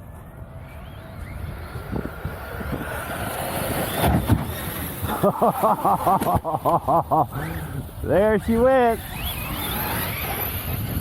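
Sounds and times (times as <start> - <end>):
radio-controlled car motor: 7.3 - 11.0.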